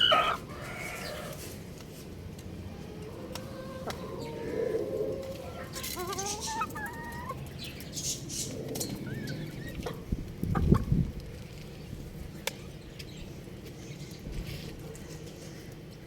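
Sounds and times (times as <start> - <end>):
young rooster calling: 0.0 - 1.5, 2.8 - 7.4.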